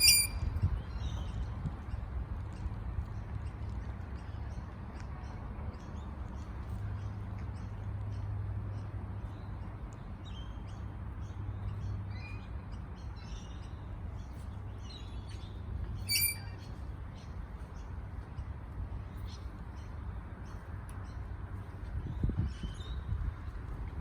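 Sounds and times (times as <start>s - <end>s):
parrot chirping: 0.0s - 0.4s, 16.1s - 16.6s.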